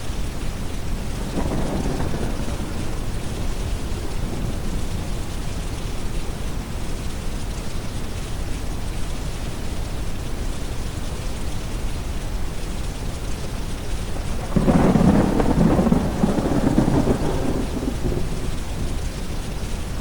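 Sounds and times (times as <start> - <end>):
steady rain: 0.0 - 20.0
rolling thunder: 0.2 - 8.2, 13.0 - 20.0.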